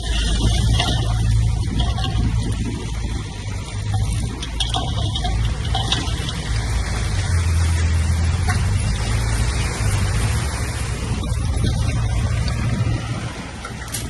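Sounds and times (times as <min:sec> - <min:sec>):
metallic clanks: 0:00.0 - 0:09.1
heavy diesel machinery rumbling: 0:00.0 - 0:14.0.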